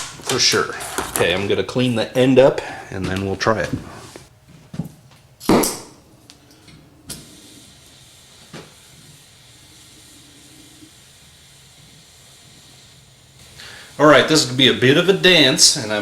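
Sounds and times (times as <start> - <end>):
gas torch hissing: 5.5 - 16.0.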